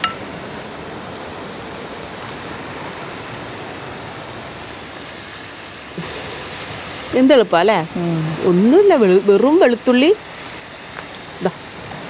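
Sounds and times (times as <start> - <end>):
food sizzling in a wok: 4.8 - 12.0.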